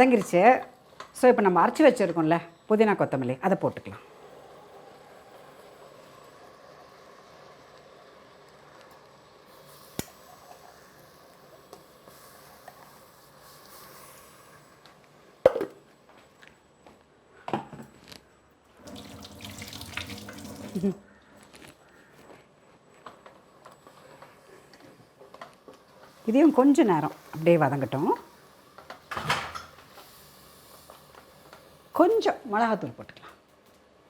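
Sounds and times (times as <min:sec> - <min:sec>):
kitchen tap running: 0:18.8 - 0:21.0.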